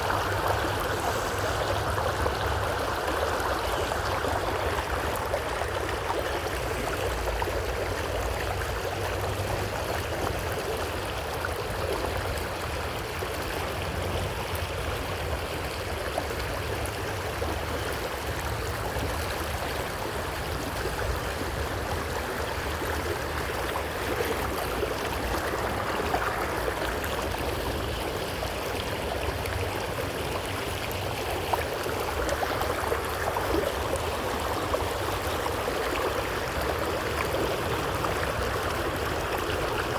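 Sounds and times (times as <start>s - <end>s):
creek water rushing over rocks: 0.0s - 39.9s.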